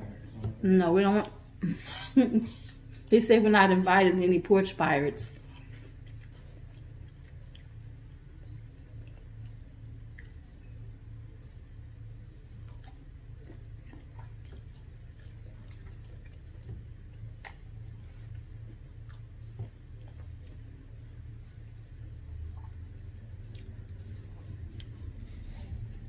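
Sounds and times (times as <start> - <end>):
steady low hum: 0.0 - 26.0
person chewing food: 5.3 - 26.0.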